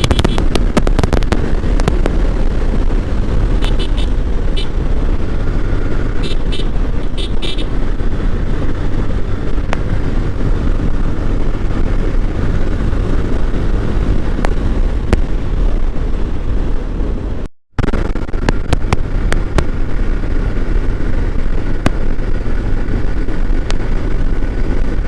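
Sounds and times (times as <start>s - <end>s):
motorcycle engine and road noise: 0.0s - 25.0s
horn short beeps: 3.6s - 4.7s, 6.2s - 7.7s.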